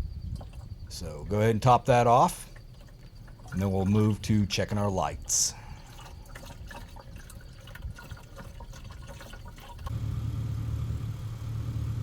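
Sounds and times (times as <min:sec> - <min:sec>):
fluid trickling and gurgling: 0:00.1 - 0:10.0
engine idling: 0:09.9 - 0:12.0.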